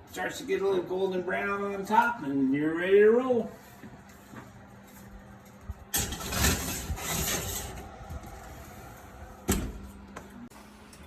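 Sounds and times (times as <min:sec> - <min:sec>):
rushing scraping noise: 0:06.0 - 0:09.2.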